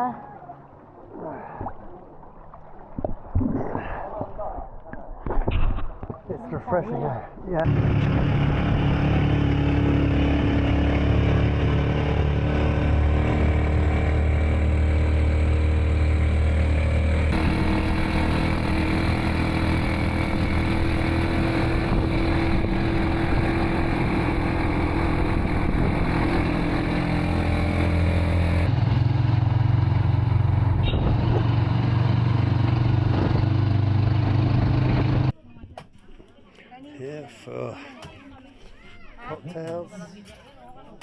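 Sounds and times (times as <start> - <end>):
motorcycle engine running: 7.7 - 35.3.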